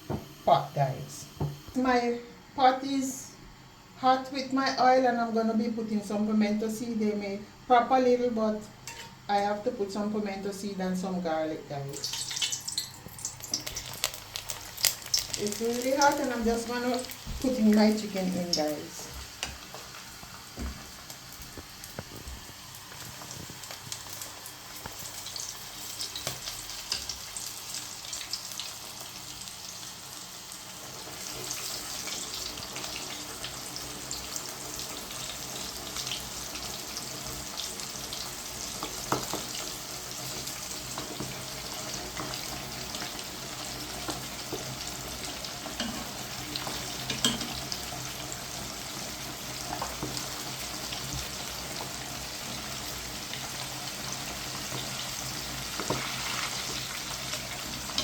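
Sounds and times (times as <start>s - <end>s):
chicken sizzling in hot oil: 11.8s - 58.0s.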